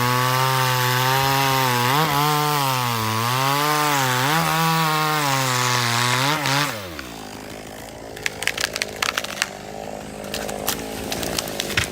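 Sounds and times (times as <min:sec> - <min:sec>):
chainsaw cutting: 0:00.0 - 0:11.9
sharp cracks and knocks: 0:04.2 - 0:11.9.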